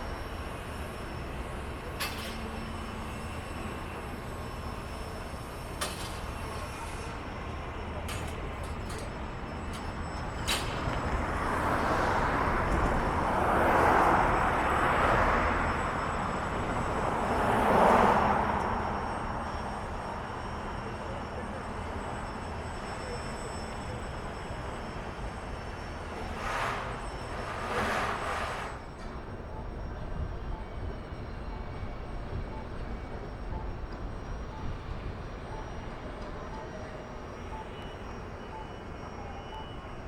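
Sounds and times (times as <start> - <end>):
street traffic rumble: 0.0 - 40.0
vehicles passing: 10.5 - 20.8.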